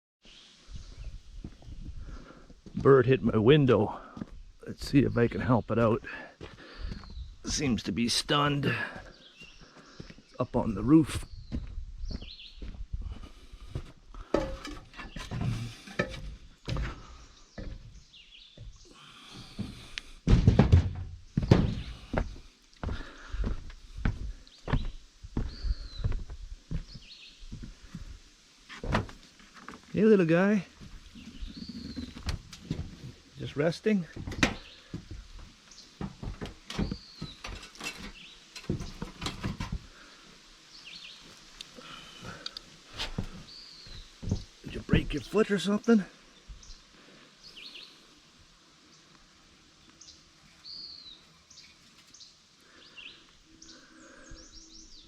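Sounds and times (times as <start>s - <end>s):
person moving and handling things: 12.7s - 18.0s, 34.1s - 40.1s, 42.5s - 44.5s
close knocks and rustles: 13.8s - 18.8s, 19.4s - 22.4s, 34.2s - 40.1s, 42.9s - 44.6s
heavy thuds: 18.6s - 25.6s, 34.1s - 40.0s
bird chirps: 31.1s - 32.3s.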